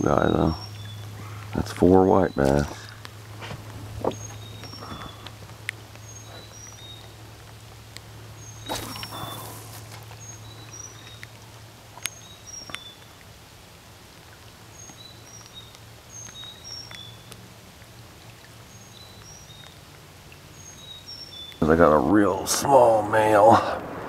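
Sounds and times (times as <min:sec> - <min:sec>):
low steady hum: 0:00.0 - 0:24.0
brief rush of noise: 0:23.5 - 0:24.0.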